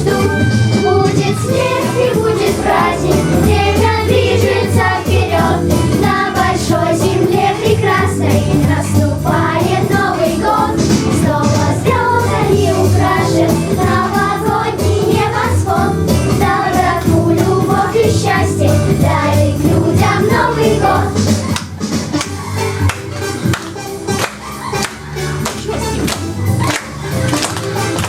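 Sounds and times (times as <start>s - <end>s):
backing track with steady beat: 0.0s - 28.0s
children's choir singing: 0.0s - 28.0s.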